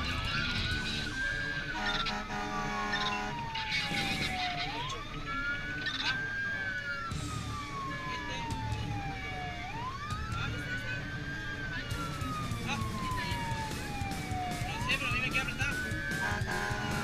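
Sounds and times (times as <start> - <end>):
electronic siren wailing: 0.0 - 17.0
truck engine rumble: 0.0 - 17.0
steady horn tone: 1.8 - 3.5, 16.2 - 17.0.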